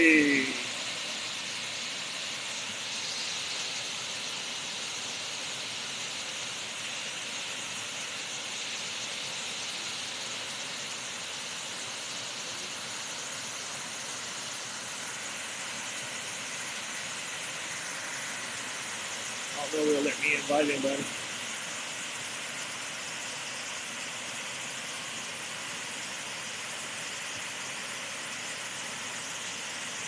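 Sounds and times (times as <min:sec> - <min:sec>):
waterfall rushing: 0:00.0 - 0:03.8, 0:14.4 - 0:23.8.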